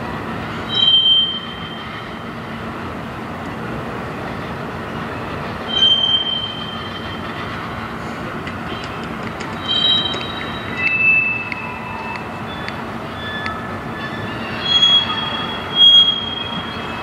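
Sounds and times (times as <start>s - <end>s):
freight train rumbling past: 0.0s - 17.0s
high-pitched wheel squeal: 0.6s - 2.2s, 5.6s - 7.5s, 9.5s - 17.0s.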